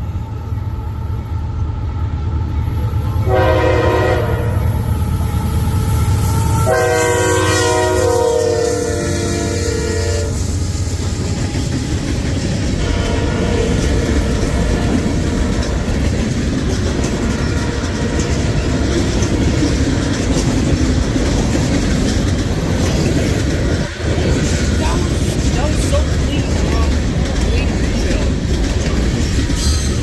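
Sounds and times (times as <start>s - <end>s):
train wheels rumbling on rails: 0.0s - 30.0s
train horn blast: 3.2s - 4.8s, 6.2s - 10.6s, 12.8s - 15.0s.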